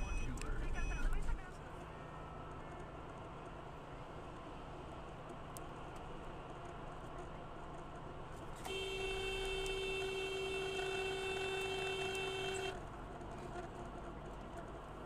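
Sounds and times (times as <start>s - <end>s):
road noise: 0.0s - 15.0s
car horn blast: 8.6s - 12.8s.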